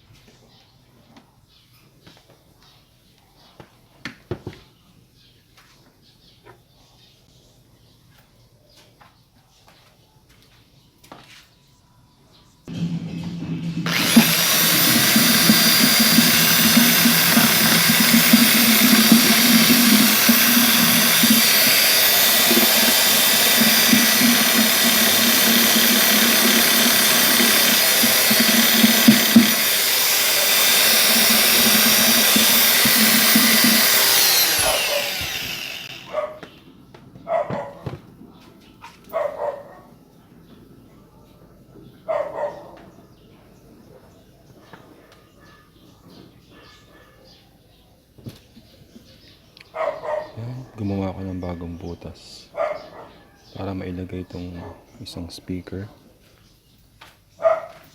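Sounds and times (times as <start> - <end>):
electric power tool cutting: 12.7 - 36.5.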